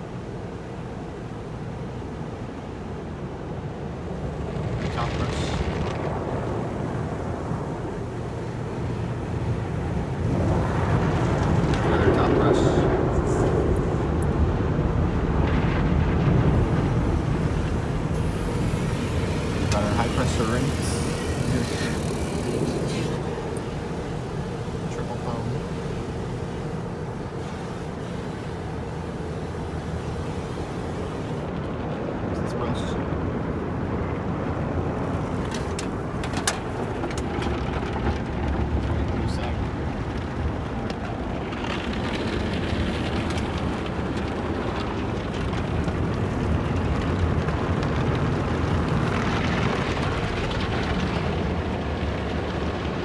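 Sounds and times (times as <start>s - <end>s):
car wash brush and water: 3.6s - 53.0s
car wash brush scrubbing roof: 15.9s - 31.7s.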